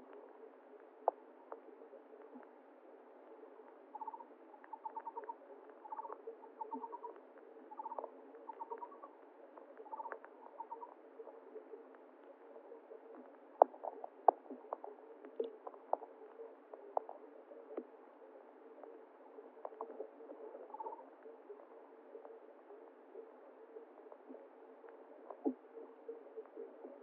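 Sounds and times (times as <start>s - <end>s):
small animal chirping trills: 4.0s - 7.1s, 9.9s - 10.9s.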